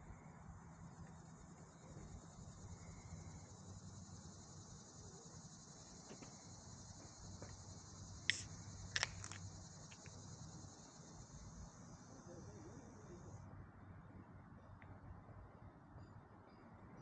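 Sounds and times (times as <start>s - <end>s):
insect chorus chirring: 0.0s - 13.4s
low background hum: 0.0s - 17.0s.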